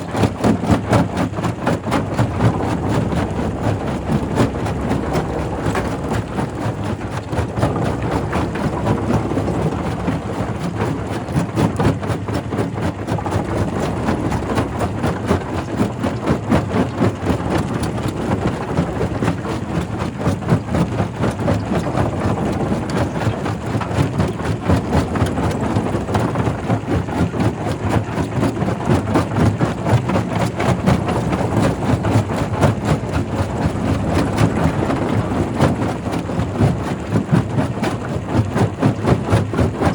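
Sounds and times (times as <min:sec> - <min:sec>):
machinery hum: 0:02.1 - 0:10.8.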